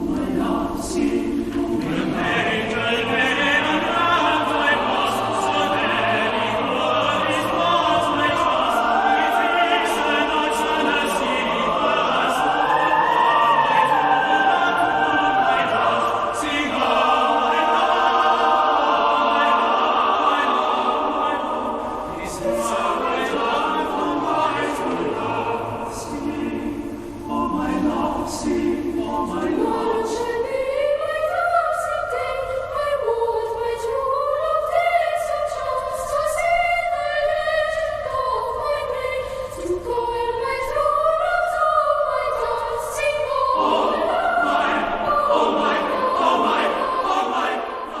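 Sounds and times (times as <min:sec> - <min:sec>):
choir singing in harmony: 0:00.0 - 0:48.0.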